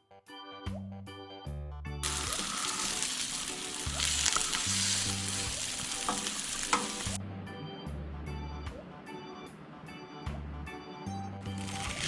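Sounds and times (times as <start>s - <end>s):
food sizzling in oil: 2.0s - 7.2s, 11.5s - 12.0s
oil popping: 2.0s - 7.2s, 11.5s - 12.0s.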